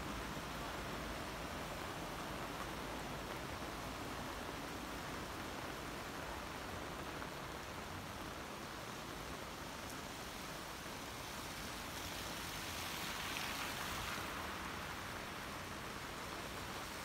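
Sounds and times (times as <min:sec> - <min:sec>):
heavy rain pouring: 0:00.0 - 0:17.0
car tyres swishing through water: 0:11.2 - 0:17.0.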